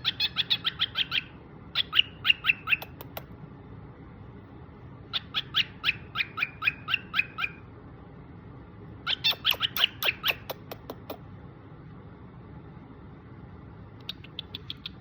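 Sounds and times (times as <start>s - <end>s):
cockatiel chirping: 0.0s - 3.2s, 5.1s - 7.6s, 9.0s - 11.2s, 14.0s - 15.0s.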